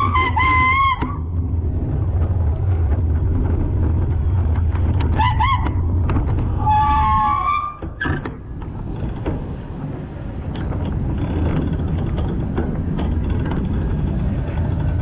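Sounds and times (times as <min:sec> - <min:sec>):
vehicle engine and road rumble: 0:00.0 - 0:15.0
clicks and knocks: 0:02.2 - 0:06.7.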